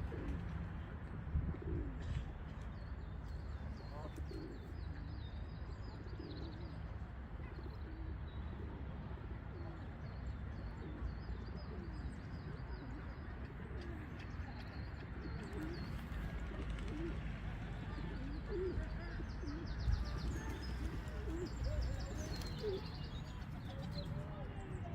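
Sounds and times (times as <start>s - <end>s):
doves cooing: 0.0s - 0.6s, 1.5s - 2.4s, 14.9s - 24.2s.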